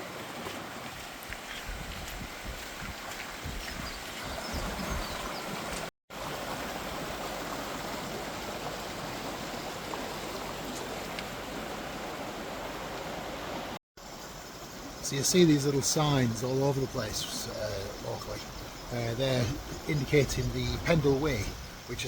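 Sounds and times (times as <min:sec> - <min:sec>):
stream of running water: 0:00.0 - 0:22.0
wind buffeting microphone: 0:00.9 - 0:07.4, 0:16.9 - 0:22.0.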